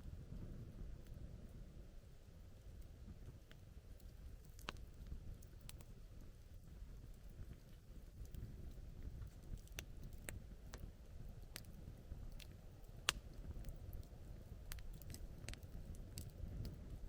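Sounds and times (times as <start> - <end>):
low steady rumble: 0.0 - 17.0
campfire crackling: 0.1 - 17.0
sharp pops of fire: 11.5 - 14.0.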